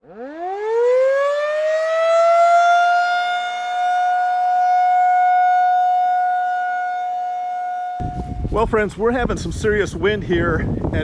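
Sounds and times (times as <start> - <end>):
warning siren wailing: 0.0 - 8.6.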